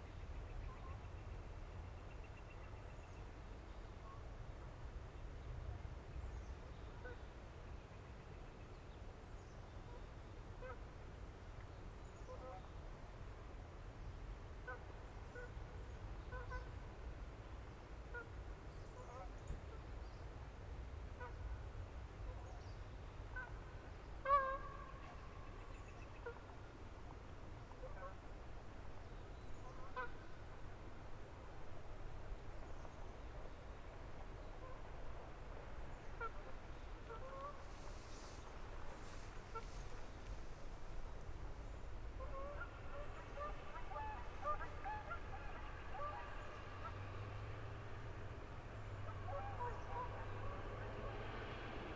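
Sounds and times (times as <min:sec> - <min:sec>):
low wind rumble: 0:23.6 - 0:51.9
waterfowl calling: 0:24.2 - 0:26.4, 0:36.0 - 0:47.2, 0:49.0 - 0:50.7.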